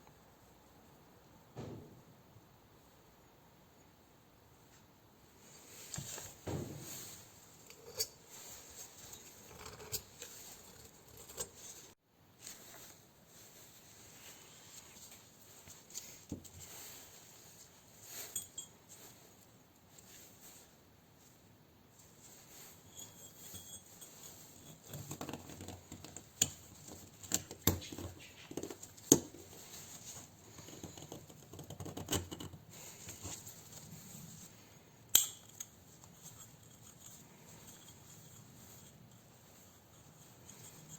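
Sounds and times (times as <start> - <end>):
metal tools knocking and scraping: 5.8 - 11.8, 18.3 - 18.8, 22.7 - 29.3
tools and small parts clicking: 35.1 - 38.0.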